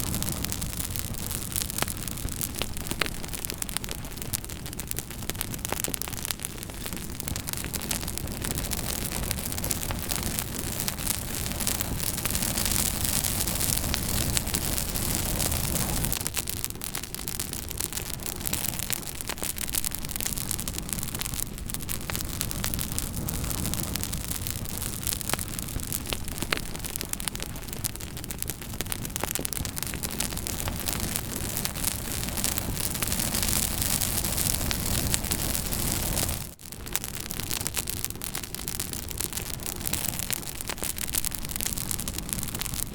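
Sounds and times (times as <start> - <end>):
campfire crackling: 0.0 - 42.9.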